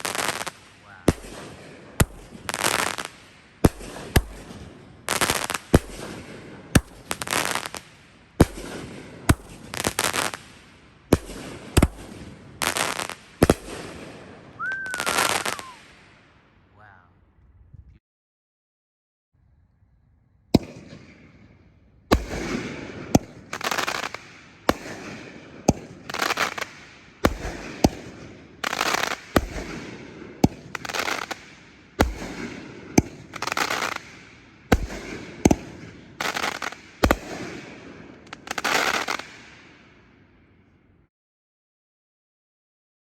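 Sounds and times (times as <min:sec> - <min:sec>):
firework crackling: 0:00.0 - 0:16.2, 0:22.1 - 0:39.8.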